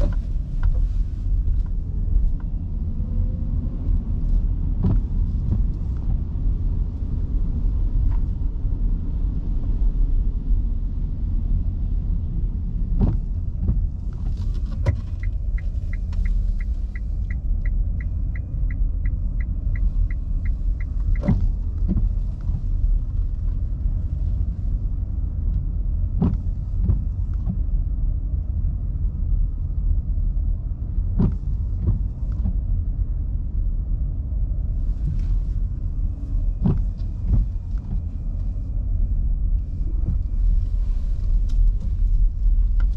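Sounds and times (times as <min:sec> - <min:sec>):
road and tyre rumble: 0:00.0 - 0:42.9
turn signal ticking: 0:13.6 - 0:22.6.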